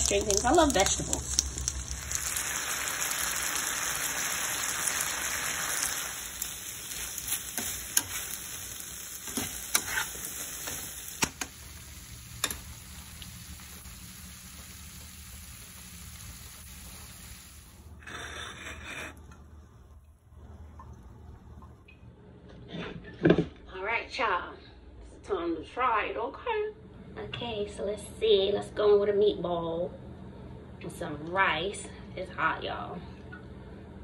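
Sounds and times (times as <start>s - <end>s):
green beans sizzling in oil: 0.0s - 19.5s.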